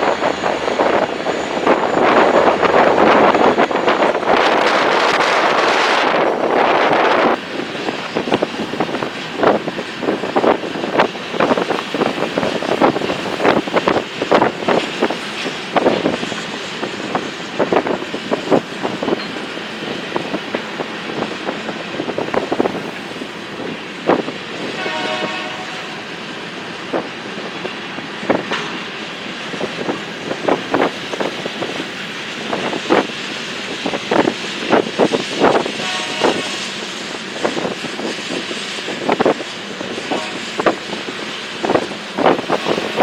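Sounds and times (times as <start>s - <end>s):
train wheels clacking over rail joints: 0.0s - 43.0s
train horn blast: 24.7s - 26.1s, 35.8s - 36.7s, 40.0s - 40.7s.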